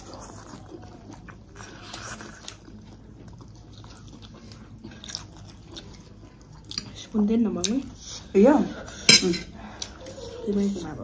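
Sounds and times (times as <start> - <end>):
person chewing and biting food: 0.0 - 7.0.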